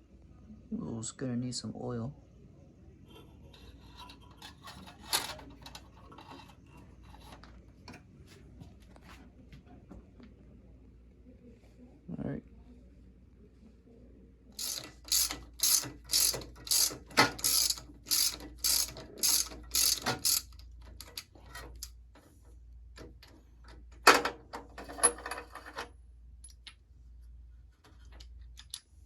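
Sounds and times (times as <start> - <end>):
ratchet wrench clicking: 14.6 - 21.9.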